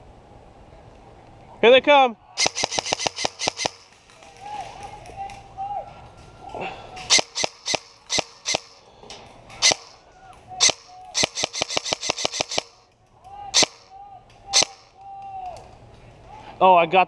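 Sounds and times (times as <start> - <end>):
airsoft gun shots: 2.4 - 3.9, 7.1 - 8.8, 9.6 - 10.0, 10.6 - 12.8, 13.6 - 13.9, 14.6 - 14.9.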